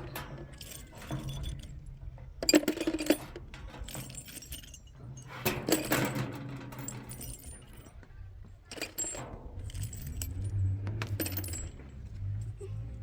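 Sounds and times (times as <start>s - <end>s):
hard objects clinking and rattling: 0.0s - 12.6s.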